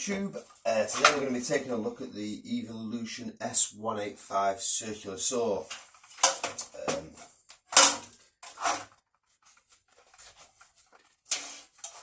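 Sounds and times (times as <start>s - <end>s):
objects knocking and clunking: 5.6s - 12.0s.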